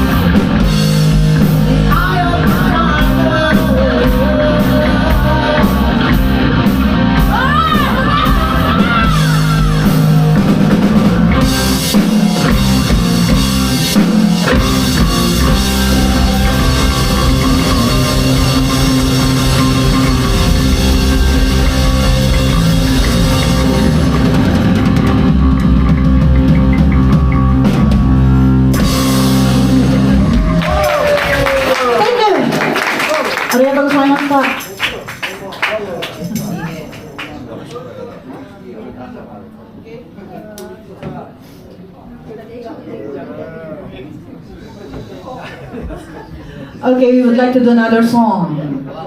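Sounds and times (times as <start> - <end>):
electric guitar: 0.0 - 32.2
drum kit: 0.0 - 35.2
rock band playing: 0.0 - 35.3.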